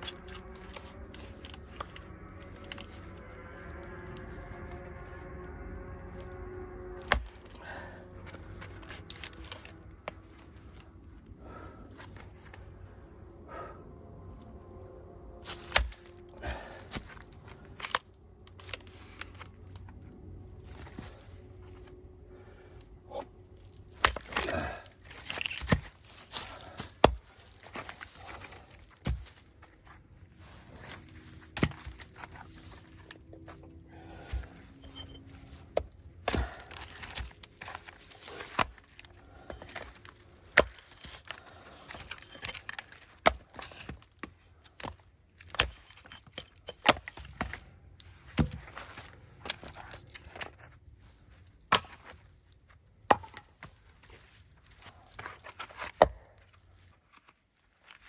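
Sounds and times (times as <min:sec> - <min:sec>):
axe chopping wood: 0:07.0 - 0:07.5, 0:15.6 - 0:17.2, 0:26.7 - 0:27.3, 0:31.5 - 0:32.3, 0:34.3 - 0:37.8, 0:42.1 - 0:47.6, 0:48.3 - 0:48.8, 0:51.7 - 0:52.1, 0:53.0 - 0:53.7, 0:55.7 - 0:56.3.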